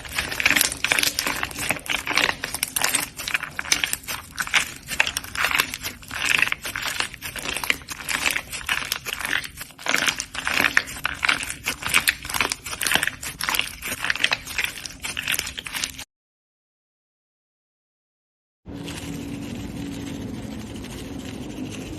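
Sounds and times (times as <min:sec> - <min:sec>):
slime squishing and popping: 0:00.0 - 0:16.0.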